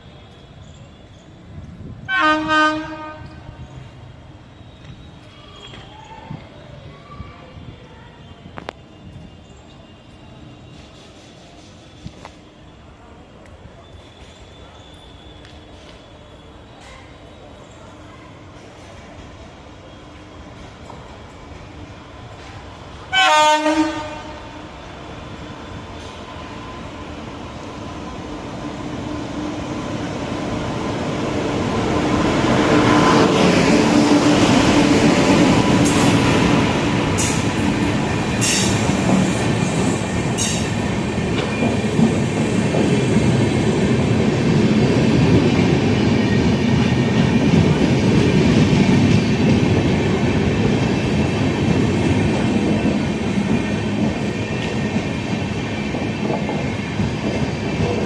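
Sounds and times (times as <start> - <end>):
train coaches clattering past: 0.0 - 58.0
high wheel squeals: 13.8 - 18.1.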